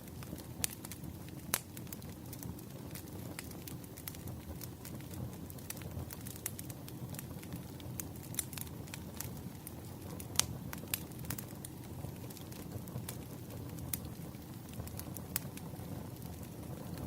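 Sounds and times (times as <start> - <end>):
crackles and pops of burning wood: 0.0 - 17.0
low rumble of flames: 0.0 - 17.0.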